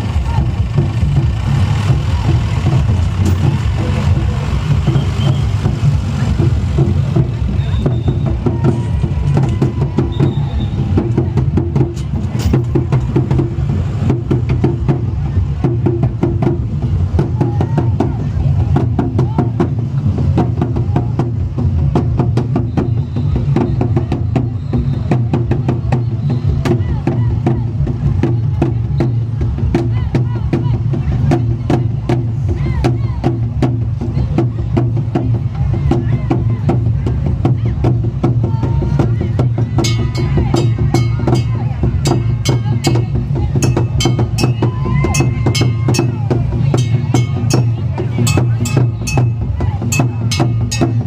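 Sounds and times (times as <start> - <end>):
vehicle engine running: 0.0 - 17.4
low rumble: 0.0 - 51.0
percussion music: 0.0 - 51.0.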